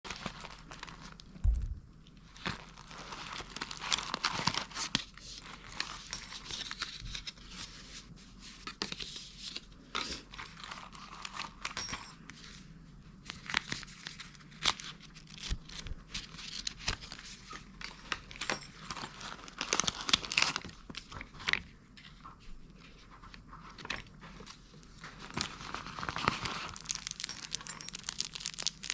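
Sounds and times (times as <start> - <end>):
packaging crinkling and tearing: 0.1 - 7.6, 13.2 - 21.6, 23.8 - 28.9.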